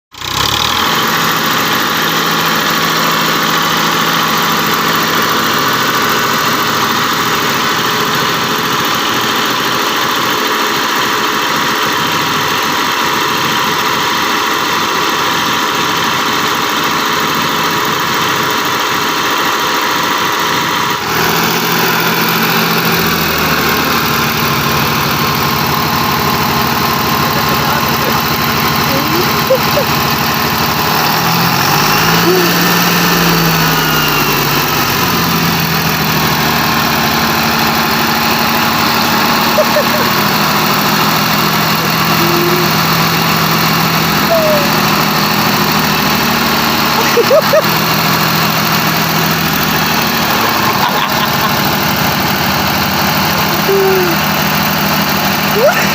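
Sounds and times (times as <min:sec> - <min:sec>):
tractor diesel engine running: 0:00.1 - 0:55.9.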